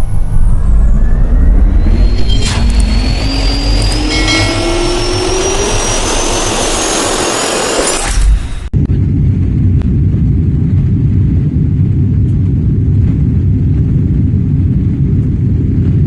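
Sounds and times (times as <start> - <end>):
jet engines spooling up: 0.0 - 8.7.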